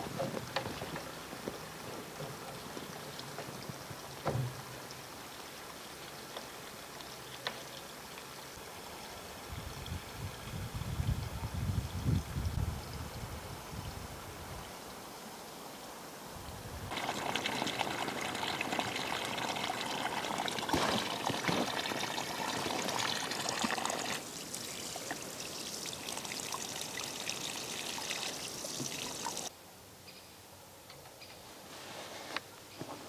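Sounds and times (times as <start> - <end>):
water pouring: 16.9 - 29.5.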